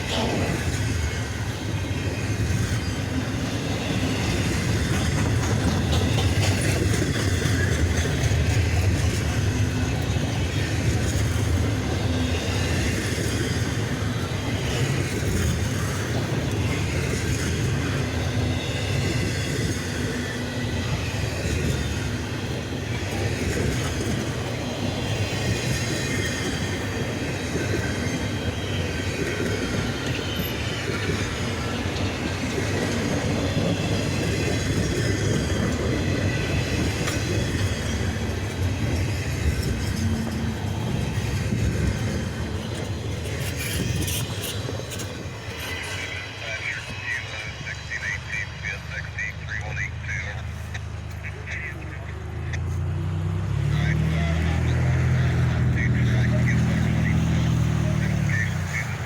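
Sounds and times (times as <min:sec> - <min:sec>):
train wheels rumbling on rail: 0:00.0 - 0:59.0
high wheel squeal: 0:22.9 - 0:49.1.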